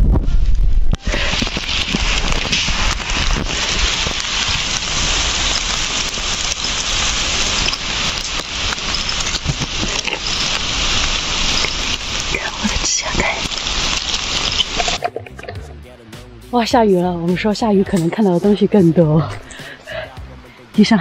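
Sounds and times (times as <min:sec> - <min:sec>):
rain pattering on foliage: 0:01.0 - 0:15.6, 0:19.2 - 0:20.0.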